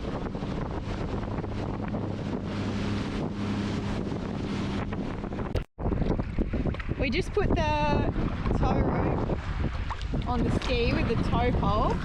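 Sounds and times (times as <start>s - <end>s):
jet ski engine hum: 0.0s - 12.0s
wind buffeting on microphone: 0.0s - 12.0s.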